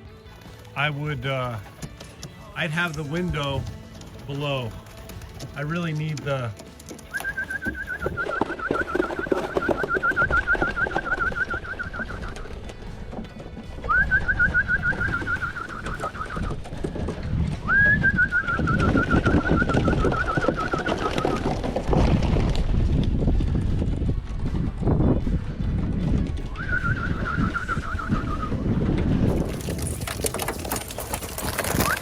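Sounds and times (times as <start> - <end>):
pigeons cooing: 6.9 - 12.6, 13.9 - 16.6.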